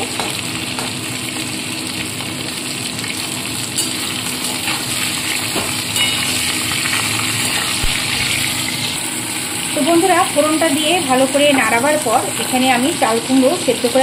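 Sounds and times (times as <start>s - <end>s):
oil sizzling: 0.0s - 14.0s
metal spatula clinking on pan: 6.0s - 6.4s.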